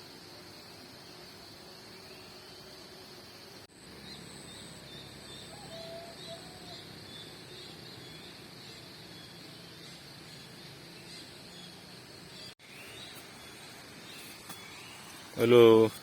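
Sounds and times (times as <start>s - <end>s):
high insect-like hiss: 0.0s - 16.0s
low bird call: 4.1s - 7.3s.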